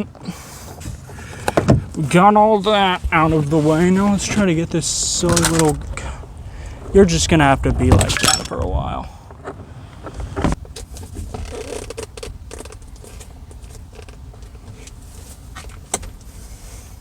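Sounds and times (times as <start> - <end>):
plastic creaks: 9.4 - 15.0.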